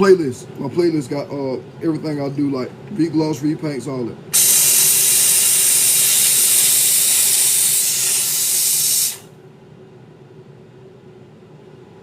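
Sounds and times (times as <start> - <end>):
hiss of steam jet: 4.4 - 9.3.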